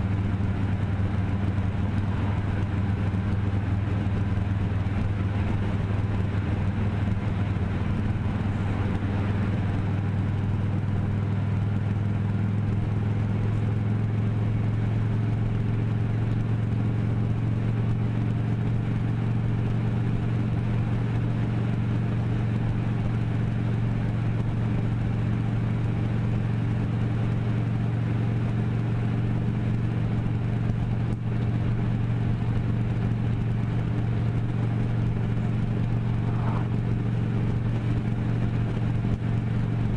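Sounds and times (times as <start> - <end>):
vehicle engine humming: 0.0 - 39.9.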